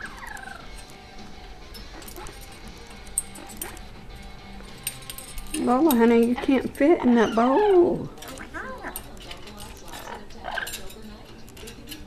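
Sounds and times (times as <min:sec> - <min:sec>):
parrot call: 0:00.0 - 0:00.7, 0:07.0 - 0:09.0.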